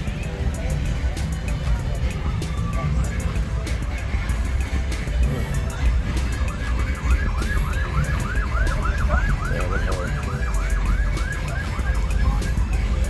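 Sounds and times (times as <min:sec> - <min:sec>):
siren yelping: 0:05.7 - 0:13.0.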